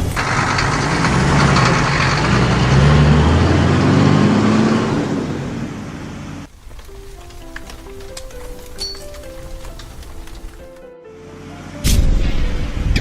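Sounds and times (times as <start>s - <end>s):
cartoon truck engine revving: 0.0s - 6.5s.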